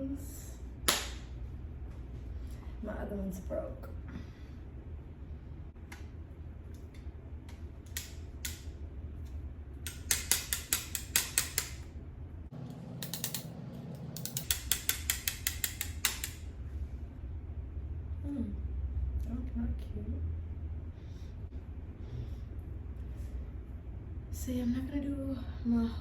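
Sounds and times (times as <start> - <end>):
ratchet-like clicks: 9.8 - 11.8, 13.0 - 13.5, 14.2 - 16.5
small mechanism clicking: 14.2 - 16.4.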